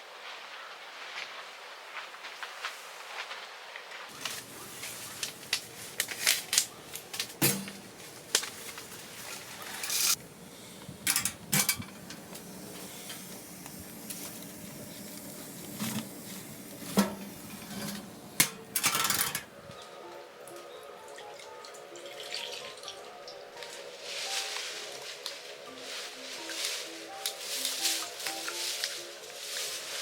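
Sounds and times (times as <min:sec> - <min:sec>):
cookware clinking and scraping: 0:06.2 - 0:10.2, 0:10.9 - 0:13.4, 0:14.0 - 0:19.6.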